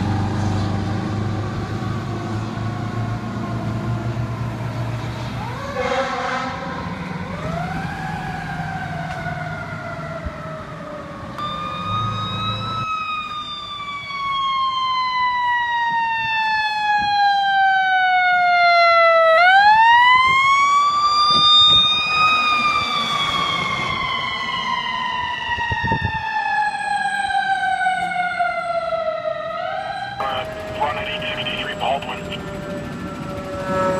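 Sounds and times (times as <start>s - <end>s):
fire truck siren wailing: 0.0s - 33.9s
low engine rumble: 30.2s - 32.8s.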